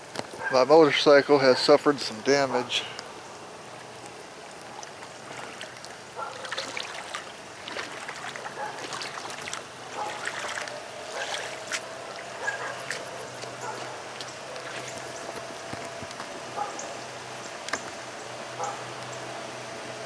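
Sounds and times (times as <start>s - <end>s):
small splashes: 3.0s - 16.7s
floodwater sloshing and trickling: 3.0s - 20.0s.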